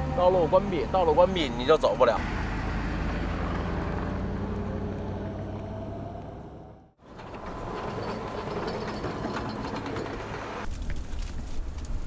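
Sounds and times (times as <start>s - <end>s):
rattling road noise: 0.0s - 12.0s
vehicle low rumble: 0.0s - 12.0s.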